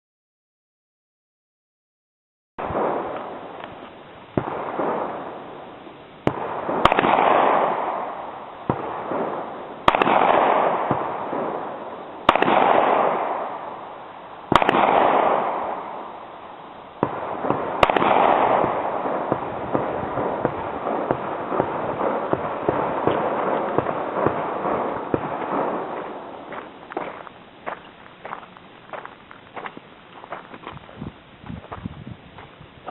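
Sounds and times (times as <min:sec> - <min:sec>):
echoing gunshots: 0:02.6 - 0:03.6, 0:04.3 - 0:27.1.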